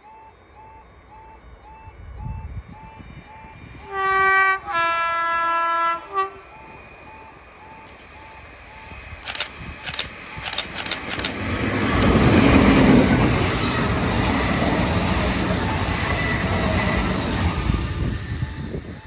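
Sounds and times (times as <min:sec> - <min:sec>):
two-tone train horn: 0:00.0 - 0:07.8
train rumble passing: 0:00.0 - 0:19.0
train wheel clacks: 0:09.2 - 0:13.2.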